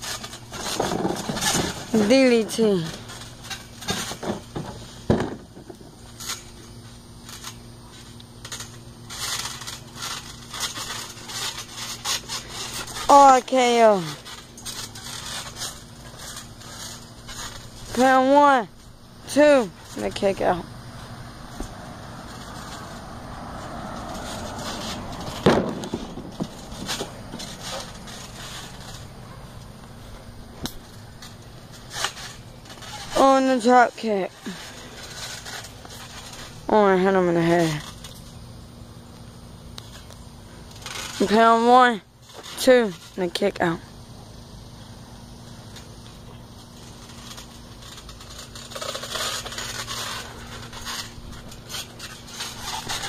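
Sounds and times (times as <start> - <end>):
trampoline springs ringing: 0.0 - 38.8
heavy thud on trampoline: 25.4 - 26.6
light knocks on trampoline bed: 25.5 - 26.3.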